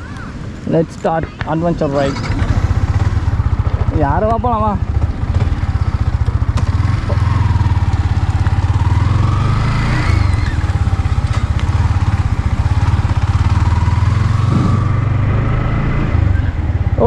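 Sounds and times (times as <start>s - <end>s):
motorcycle engine idling low: 1.8s - 9.4s.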